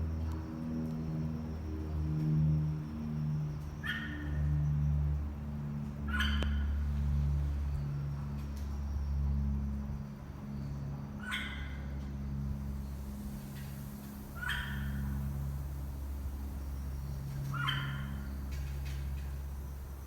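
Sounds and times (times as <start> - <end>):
steady low hum: 4.4 - 20.0
myna bird calls: 12.6 - 20.0.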